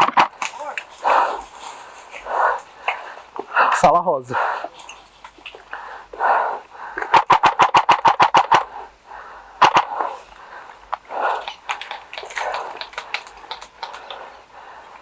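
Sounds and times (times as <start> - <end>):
airsoft gun firing shots: 0.0 - 0.6, 7.0 - 8.8, 9.6 - 10.2.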